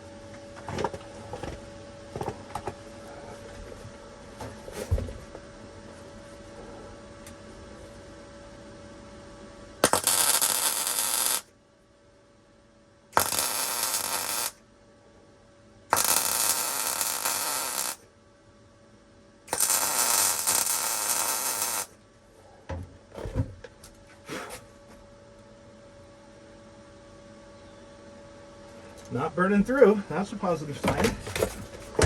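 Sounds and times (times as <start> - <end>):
welder crackling hiss: 9.8 - 11.5, 13.2 - 14.6, 15.9 - 18.0, 19.5 - 21.9.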